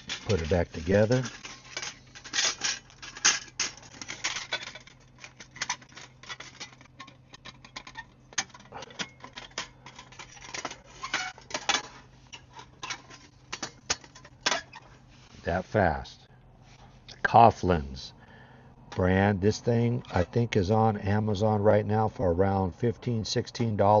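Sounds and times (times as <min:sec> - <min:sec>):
metal camp stove clicking and clanking: 0:00.0 - 0:14.9.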